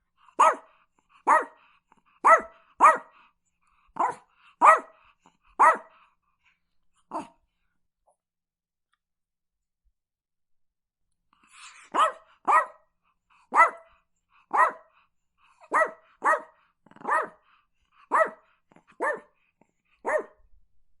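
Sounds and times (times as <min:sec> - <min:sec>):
small dog barking: 0:00.3 - 0:03.2, 0:04.0 - 0:05.0, 0:05.6 - 0:06.0, 0:11.8 - 0:12.9, 0:13.5 - 0:15.0, 0:15.6 - 0:19.4, 0:20.0 - 0:20.4.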